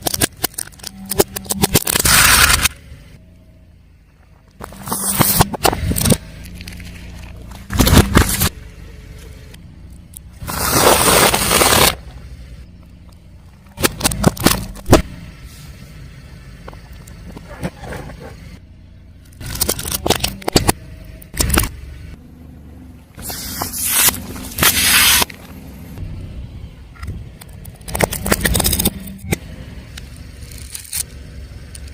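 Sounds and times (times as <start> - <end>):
car rumble: 0.0 - 31.9
tyre crushing objects: 4.6 - 8.6, 10.4 - 12.1.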